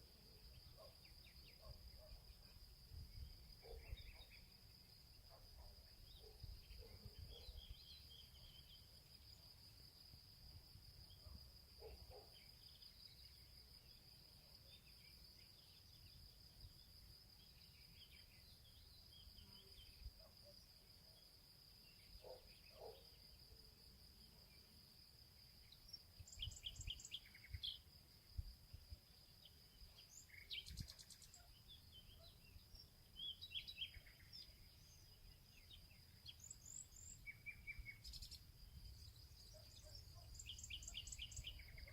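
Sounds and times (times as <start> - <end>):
bird chirps: 25.7 - 27.9, 29.9 - 41.9
high-pitched insect trill: 32.8 - 41.9.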